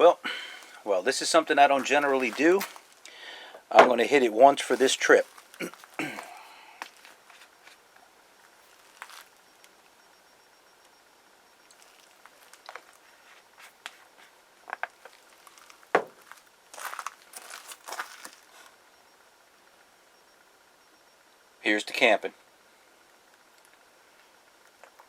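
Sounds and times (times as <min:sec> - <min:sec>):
crinkling and rustling: 0:00.6 - 0:03.0, 0:03.8 - 0:09.4, 0:11.7 - 0:18.7.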